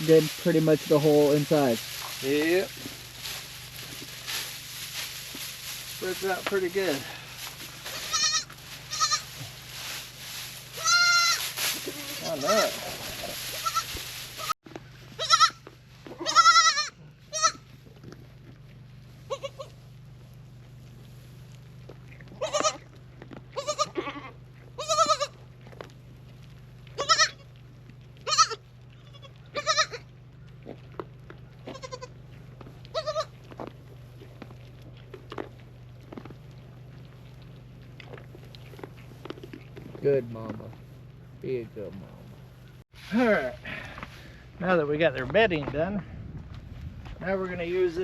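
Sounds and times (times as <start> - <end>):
livestock bleating: 7.8 - 9.5, 10.7 - 14.5, 15.1 - 17.6, 19.3 - 19.8, 22.3 - 22.9, 23.5 - 25.4, 27.0 - 27.5, 28.2 - 30.1, 31.6 - 32.1, 32.9 - 33.4.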